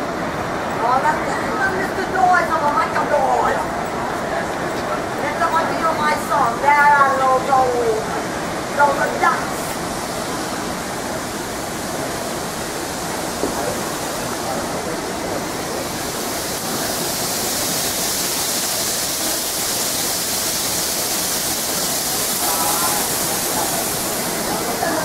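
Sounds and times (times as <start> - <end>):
electric train running on rails: 0.0 - 25.0
hiss: 7.6 - 25.0.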